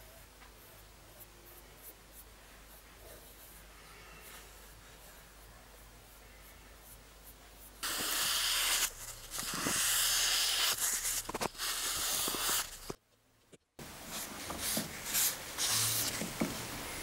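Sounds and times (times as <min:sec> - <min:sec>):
loud steady hiss: 0:07.8 - 0:13.0, 0:13.8 - 0:17.0.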